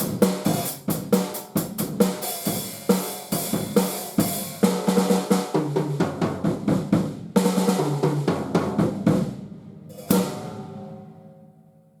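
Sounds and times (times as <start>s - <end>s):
drum kit fill: 0.0s - 11.5s
drum hit ringing out: 5.6s - 11.3s.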